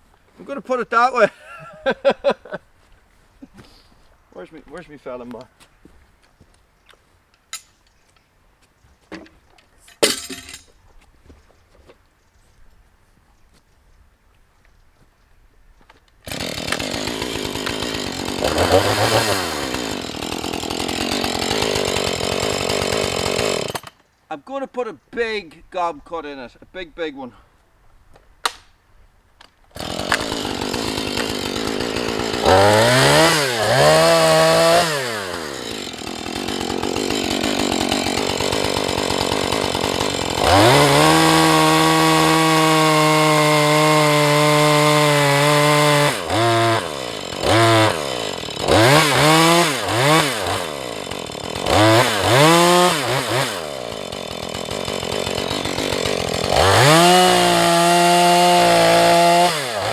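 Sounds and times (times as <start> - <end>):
chainsaw cutting tree trunk: 16.2 - 24.0, 29.7 - 59.9.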